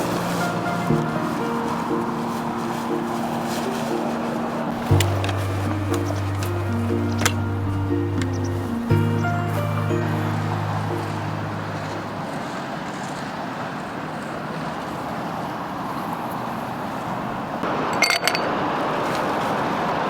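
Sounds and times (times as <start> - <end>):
music low note: 0.0 - 12.4
rushing outdoor background noise: 0.0 - 20.0.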